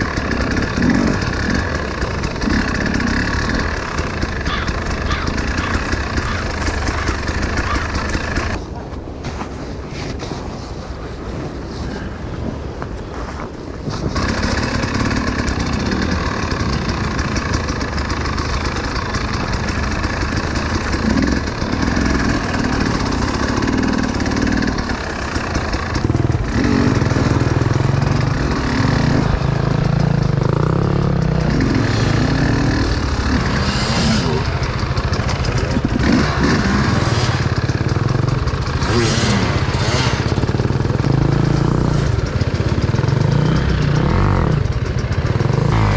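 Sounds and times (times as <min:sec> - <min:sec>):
motorcycle engine revving: 0:00.0 - 0:08.6, 0:13.8 - 0:45.9.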